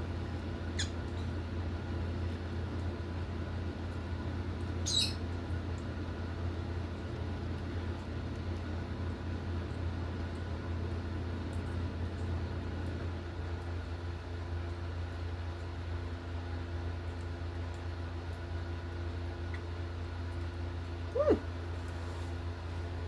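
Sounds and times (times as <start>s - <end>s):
lovebird chick squeak: 4.8s - 5.2s.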